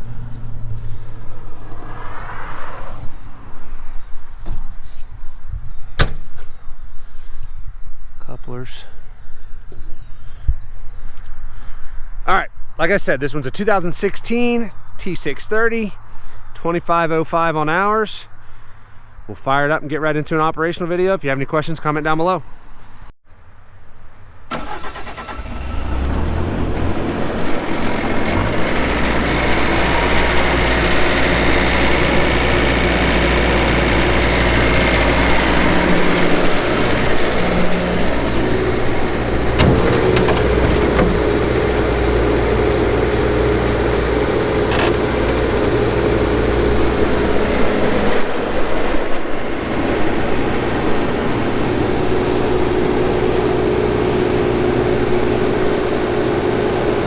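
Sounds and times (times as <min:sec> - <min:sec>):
diesel engine starting and running: 0:00.0 - 0:05.0, 0:24.5 - 0:57.0
steady whine: 0:26.9 - 0:56.3.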